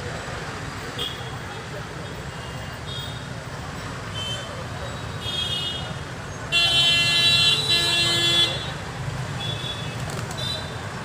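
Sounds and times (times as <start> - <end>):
road traffic rumble: 0.0 - 11.0
vehicle horn honking: 6.5 - 8.7.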